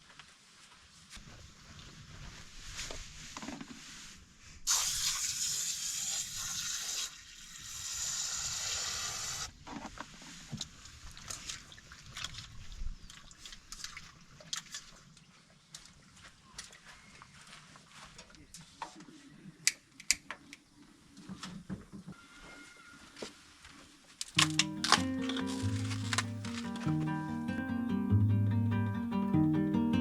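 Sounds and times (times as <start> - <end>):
water pouring: 4.7 - 8.4
handling clicks and knocks: 24.2 - 27.0.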